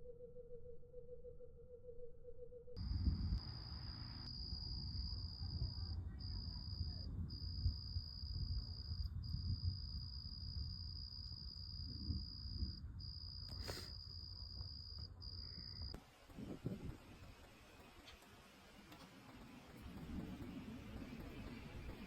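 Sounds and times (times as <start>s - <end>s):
crickets trilling: 2.5s - 18.6s.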